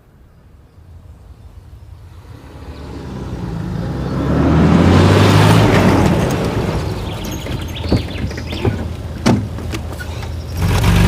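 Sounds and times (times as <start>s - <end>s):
vehicle engine passing by: 1.9s - 9.1s, 10.0s - 11.0s.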